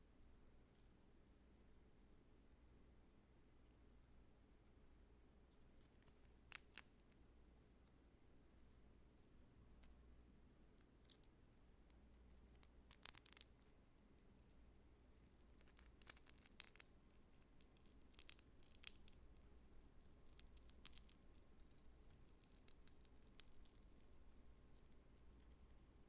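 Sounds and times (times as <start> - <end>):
crackling and scratching handling: 5.8 - 7.2, 10.8 - 26.0.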